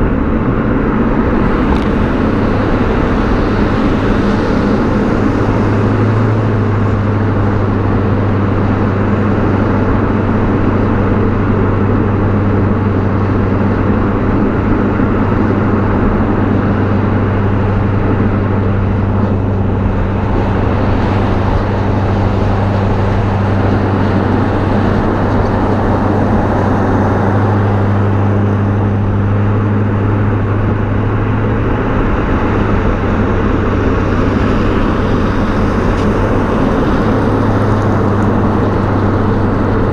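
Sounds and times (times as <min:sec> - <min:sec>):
car exhaust engine note: 0:00.0 - 0:39.9
wind and road noise: 0:00.0 - 0:39.9.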